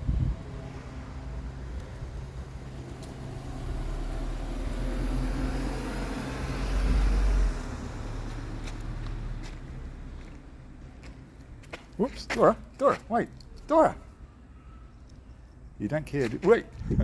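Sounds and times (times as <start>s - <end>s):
car driving past: 0.2s - 10.9s.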